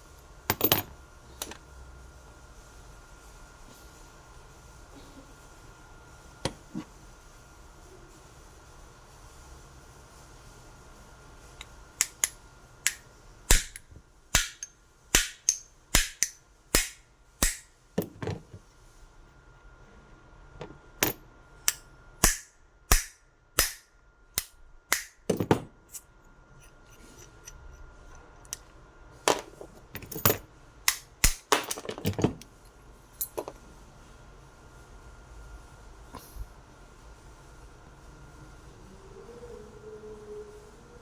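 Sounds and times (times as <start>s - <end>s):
faint steady hum: 0.0s - 41.0s
hammer striking metal: 12.9s - 13.8s, 14.4s - 17.7s, 22.2s - 25.2s.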